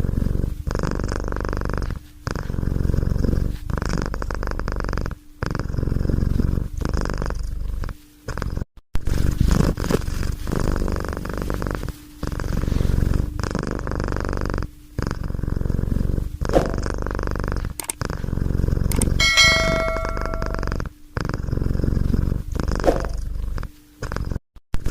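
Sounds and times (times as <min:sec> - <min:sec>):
cat purring: 0:00.0 - 0:08.7, 0:09.4 - 0:19.9, 0:21.2 - 0:24.4
ringing ding: 0:18.9 - 0:20.8.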